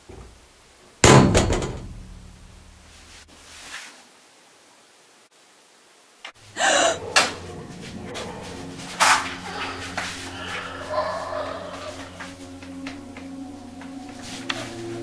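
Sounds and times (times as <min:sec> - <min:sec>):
heavy bang with low rumble: 0:01.0 - 0:02.7.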